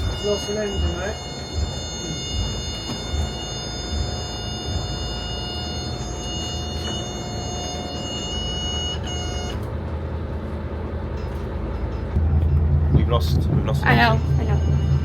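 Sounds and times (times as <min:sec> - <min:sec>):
high-pitched electronic alarm tone: 0:00.0 - 0:09.7, 0:13.7 - 0:15.0
boat engine running: 0:00.0 - 0:15.0.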